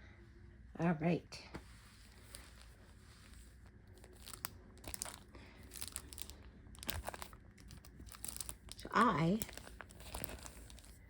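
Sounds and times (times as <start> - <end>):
sticker packets crinkling: 2.2 - 11.0.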